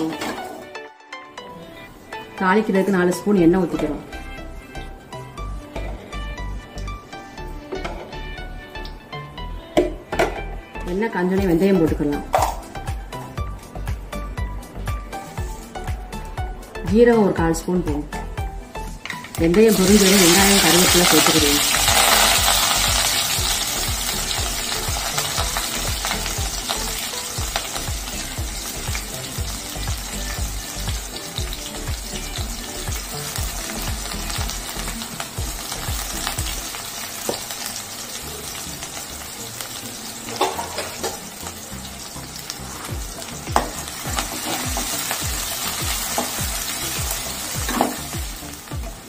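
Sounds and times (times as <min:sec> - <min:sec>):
onions sizzling in hot oil: 0:19.2 - 0:49.0.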